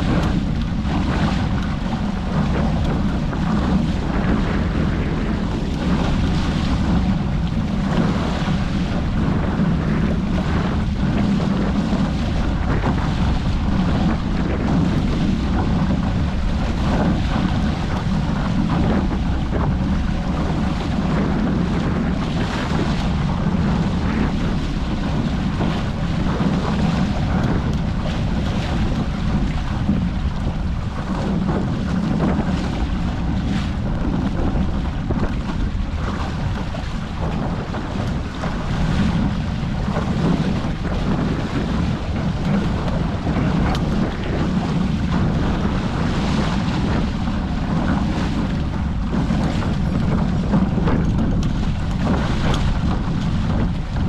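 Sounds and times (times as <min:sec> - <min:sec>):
water rushing past hulls: 0:00.0 - 0:54.0
wind buffeting microphone: 0:00.0 - 0:54.0.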